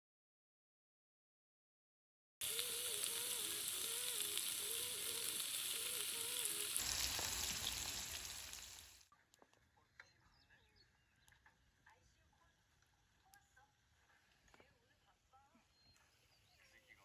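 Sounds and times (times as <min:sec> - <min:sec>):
food sizzling on a grill: 0:02.4 - 0:09.0.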